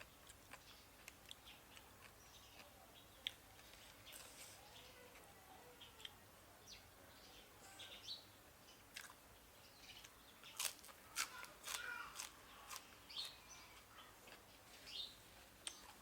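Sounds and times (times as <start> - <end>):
person chewing crisp food: 0.0 - 4.6, 8.9 - 9.2, 10.0 - 16.0.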